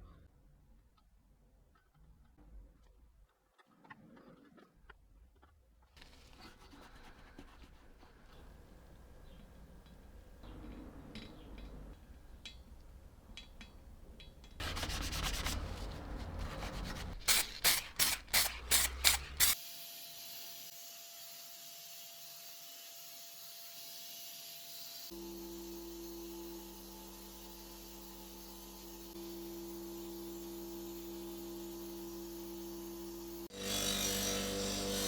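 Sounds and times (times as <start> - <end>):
hand rubbing and scraping machine: 14.6 - 19.6.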